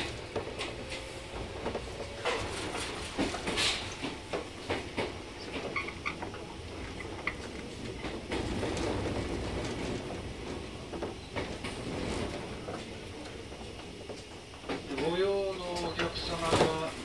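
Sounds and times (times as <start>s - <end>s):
train rumbling: 0.0s - 17.0s
wheels clicking over rail joints: 0.0s - 17.0s.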